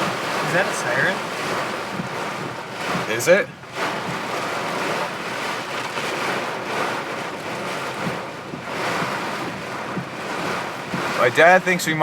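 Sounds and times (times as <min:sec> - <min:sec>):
heavy rain beating on a car: 0:00.0 - 0:12.0.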